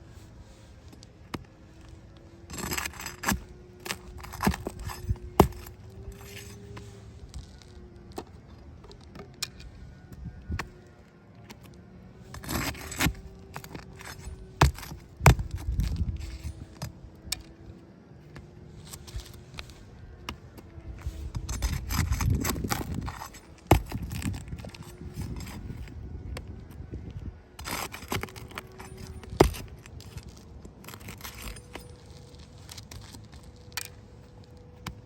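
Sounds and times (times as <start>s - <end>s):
small hard objects clinking: 2.5s - 6.6s, 27.6s - 34.0s.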